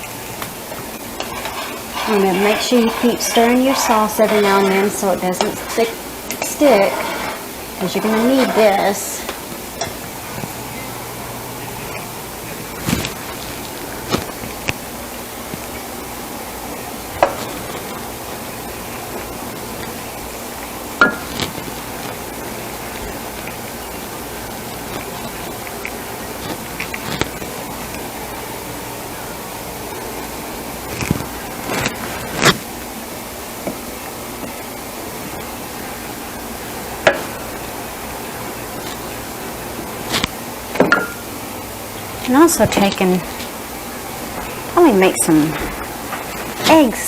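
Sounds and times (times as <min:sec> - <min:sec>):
steady hiss: 0:00.0 - 0:47.0
utensil clinking on cookware: 0:01.2 - 0:10.0.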